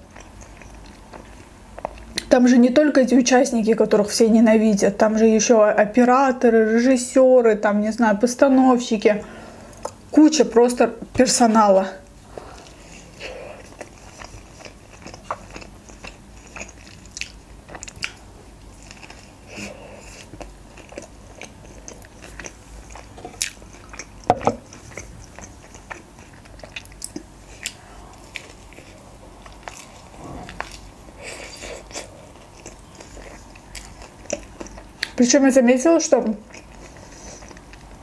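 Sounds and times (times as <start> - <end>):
person chewing wrap: 0.0 - 2.3, 12.2 - 35.2, 36.4 - 38.0.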